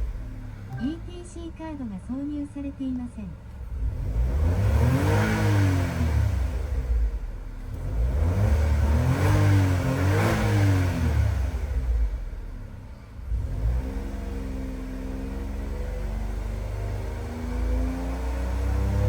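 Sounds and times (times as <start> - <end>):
exhaust idling: 0.0 - 13.8
engine revving: 0.0 - 19.0.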